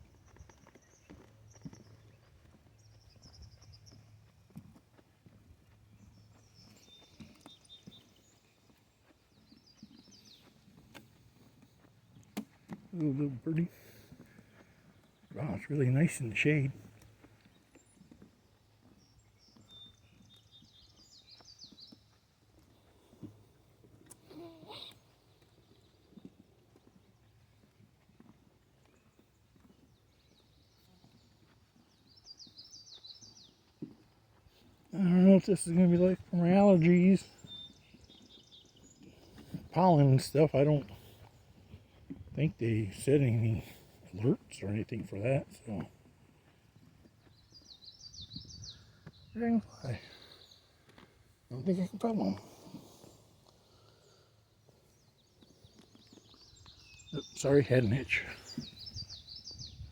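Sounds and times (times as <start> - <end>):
footsteps on wooden boardwalk: 0.0 - 15.4, 16.8 - 35.0, 37.3 - 39.8, 40.8 - 42.4, 43.6 - 57.4
bird singing: 0.0 - 22.6, 28.8 - 59.9
small bird chirping: 24.0 - 27.7, 47.2 - 50.9, 51.5 - 59.9.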